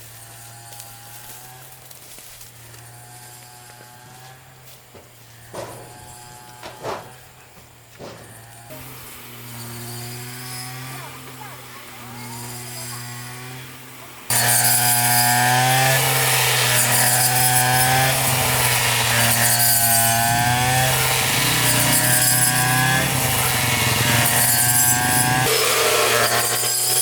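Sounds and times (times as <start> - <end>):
motor-driven machine humming: 8.7 - 27.0.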